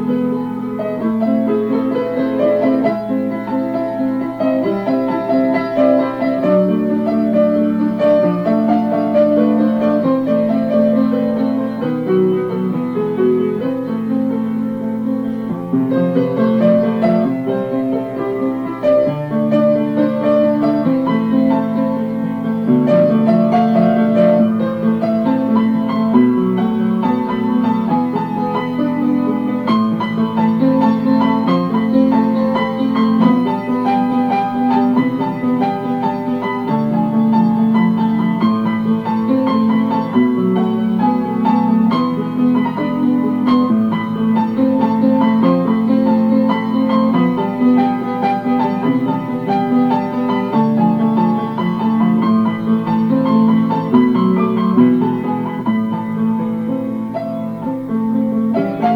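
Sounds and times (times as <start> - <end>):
piano playing chords and melody: 0.0 - 58.9.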